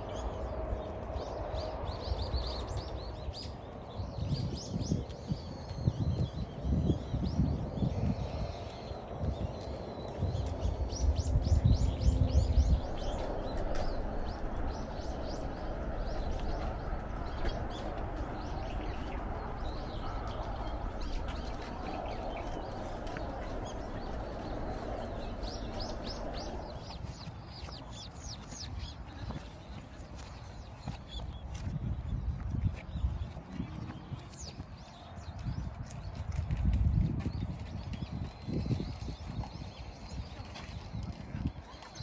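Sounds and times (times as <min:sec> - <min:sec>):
songbirds chirping: 0:00.0 - 0:42.0
low rumble: 0:06.7 - 0:27.6.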